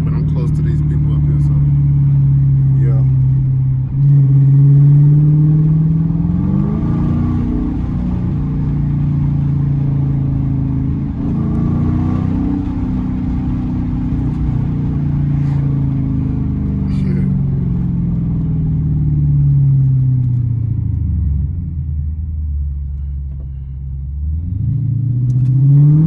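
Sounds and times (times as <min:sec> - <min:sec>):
v eight engine revving: 0:00.0 - 0:09.8, 0:10.9 - 0:18.3.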